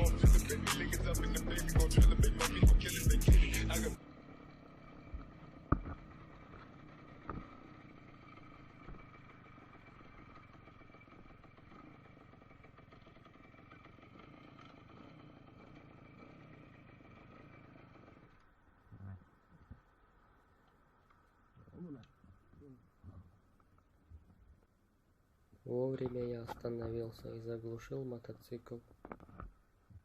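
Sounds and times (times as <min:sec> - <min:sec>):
faint motorcycle engine running: 0:00.0 - 0:19.9.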